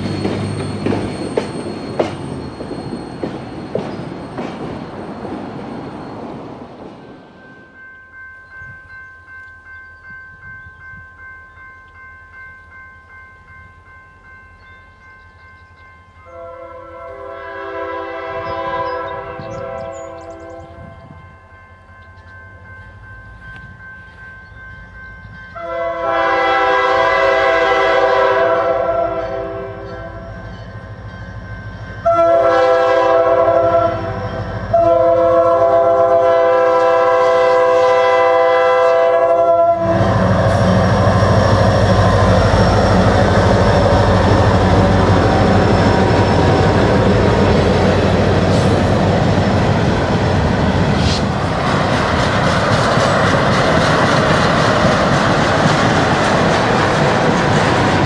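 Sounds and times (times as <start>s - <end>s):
freight train rumbling past: 0.0s - 58.0s
locomotive horn blasts: 16.2s - 21.0s, 25.6s - 30.4s, 32.0s - 45.9s
wheels clicking over rail joints: 42.0s - 58.0s.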